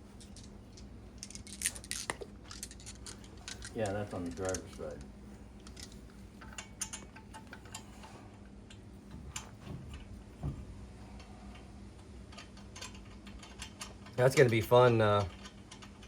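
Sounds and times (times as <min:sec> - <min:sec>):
tools and parts clicking: 0:00.1 - 0:07.9.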